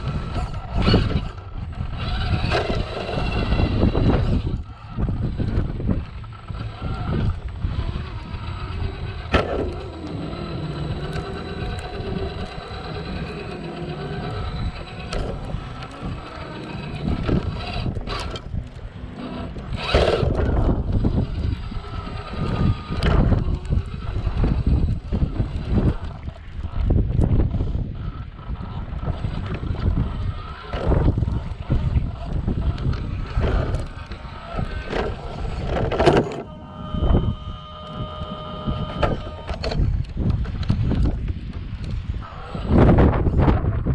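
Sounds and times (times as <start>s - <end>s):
toy car motor whining: 0.0s - 43.9s.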